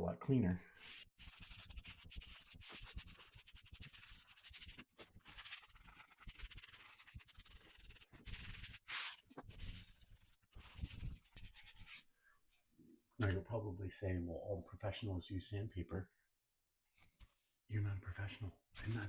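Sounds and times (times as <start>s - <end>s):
wet sponge scrubbing: 0.8s - 12.1s.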